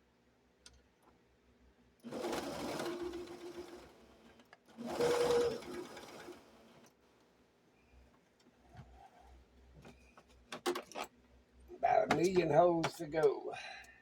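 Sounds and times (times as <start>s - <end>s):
electric sewing machine running: 2.1s - 4.1s, 4.8s - 6.8s.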